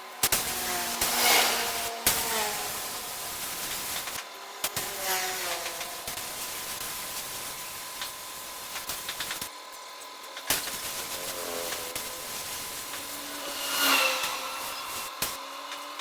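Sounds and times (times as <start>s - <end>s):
steady airy hiss: 0.0s - 9.5s, 10.4s - 15.4s
sharp clicks: 8.0s - 9.5s.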